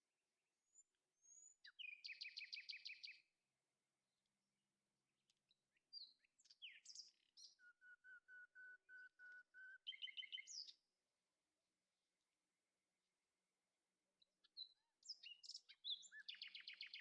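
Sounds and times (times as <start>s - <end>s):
bird singing faintly: 0.6s - 3.2s, 5.7s - 10.8s, 14.4s - 17.0s.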